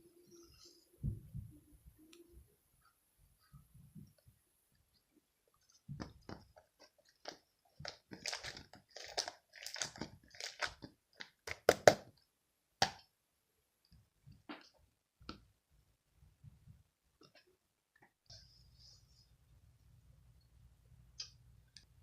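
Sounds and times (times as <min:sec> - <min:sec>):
close-up crunching and clicking: 0:06.0 - 0:12.1.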